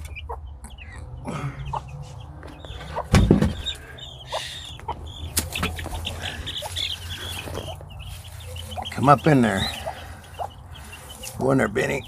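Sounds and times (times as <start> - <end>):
faint chick peeps: 0.0 - 12.0
heavy thump: 3.0 - 3.7.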